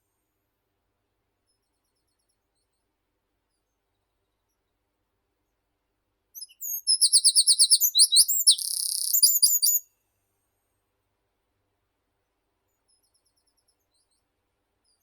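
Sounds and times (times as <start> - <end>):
songbird singing: 6.4 - 9.8.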